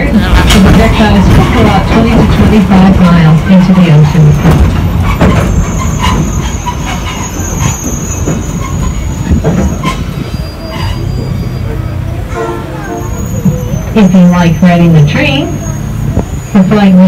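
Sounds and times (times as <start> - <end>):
train rumbling on track: 0.0 - 17.0
high wheel squeal: 4.1 - 16.6.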